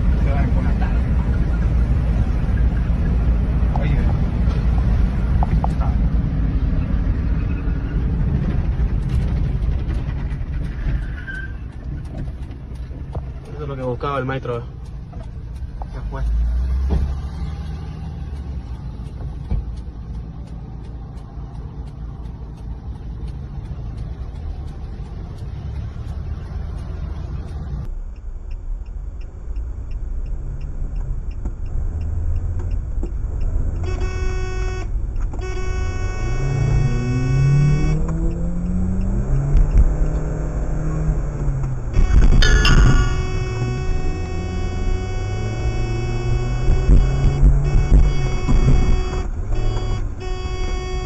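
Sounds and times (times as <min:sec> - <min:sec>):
car engine and road rumble: 0:00.0 - 0:51.0
car horn blaring: 0:33.8 - 0:38.0, 0:41.9 - 0:51.0.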